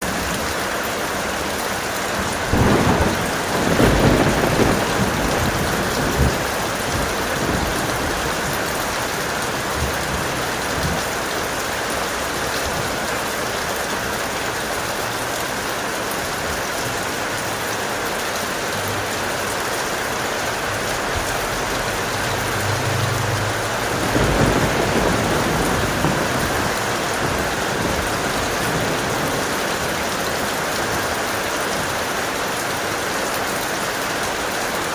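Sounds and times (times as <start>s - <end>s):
heavy rain: 0.0s - 34.9s
rolling thunder: 2.3s - 11.3s, 20.7s - 30.3s.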